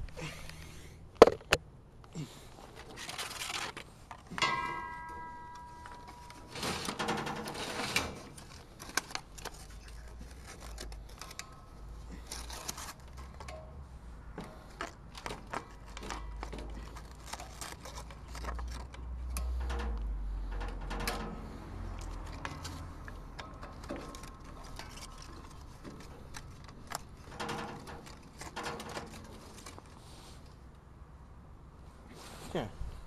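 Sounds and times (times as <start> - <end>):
metal and plastic clicks and knocks: 1.2 - 1.6, 12.3 - 29.9.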